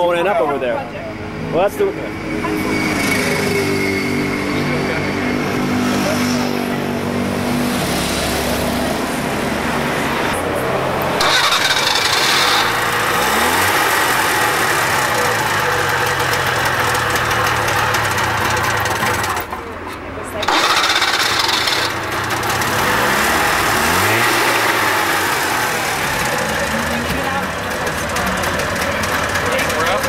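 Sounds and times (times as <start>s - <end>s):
small car engine running: 10.3s - 30.0s.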